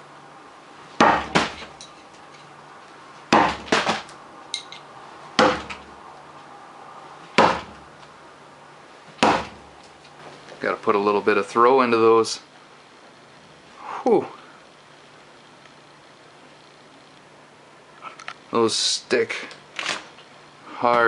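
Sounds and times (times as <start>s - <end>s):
throwing spikes striking target: 1.0s - 1.8s, 3.3s - 4.1s.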